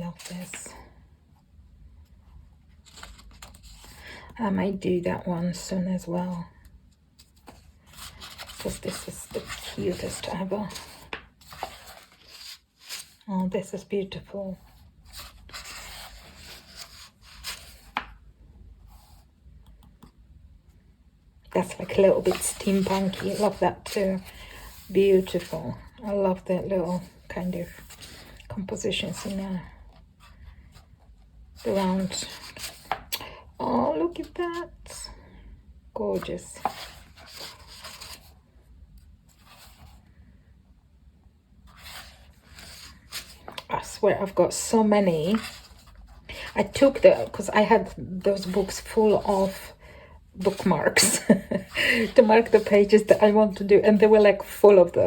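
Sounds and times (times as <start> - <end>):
book pages turning: 2.2 - 4.4, 6.5 - 13.2, 14.5 - 20.2, 21.6 - 33.3, 36.1 - 40.2, 41.6 - 49.7, 50.4 - 54.7.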